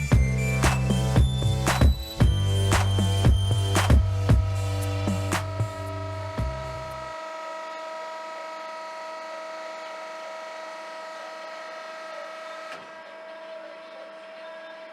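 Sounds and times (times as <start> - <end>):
bandsaw humming: 0.0 - 7.6.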